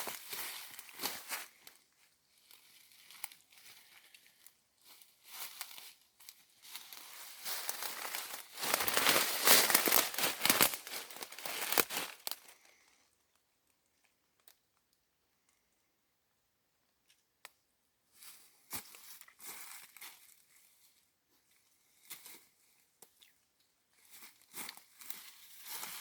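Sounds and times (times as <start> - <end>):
dry leaves rustling and crackling: 0.0 - 1.5, 5.2 - 12.6
crunches in brush: 6.8 - 12.6.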